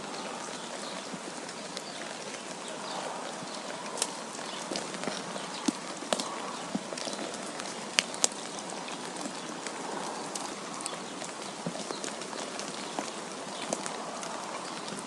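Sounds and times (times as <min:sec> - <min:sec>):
light ticks on surfaces: 0:00.0 - 0:15.0.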